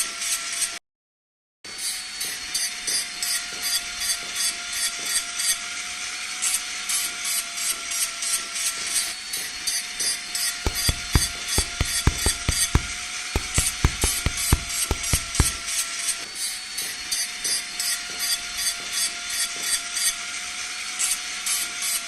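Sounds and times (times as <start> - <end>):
hand tool scraping a knife: 10.7 - 15.6
sharp taps: 10.7 - 15.7.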